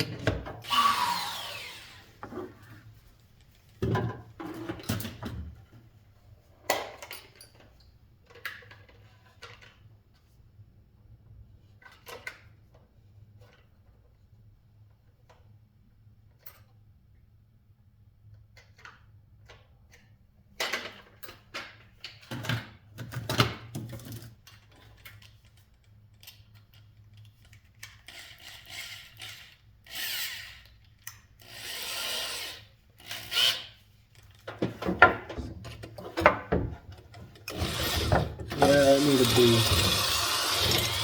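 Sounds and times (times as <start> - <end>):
drill boring into metal: 0.6 - 2.0, 37.5 - 41.0
handling knocks and clatter: 34.4 - 38.6.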